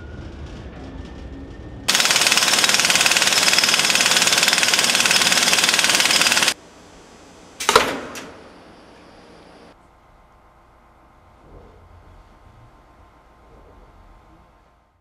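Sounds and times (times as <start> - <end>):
pneumatic tool hammering: 1.9 - 6.6.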